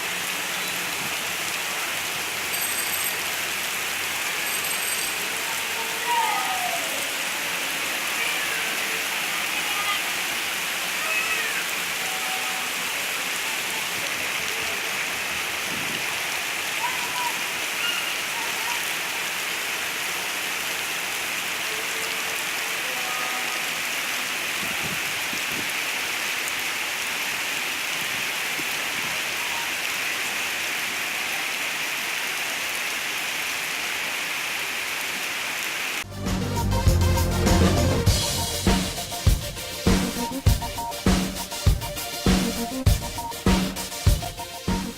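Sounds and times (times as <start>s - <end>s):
heavy rain on hard surfaces: 0.0s - 44.9s
music with drum kit: 36.1s - 44.9s.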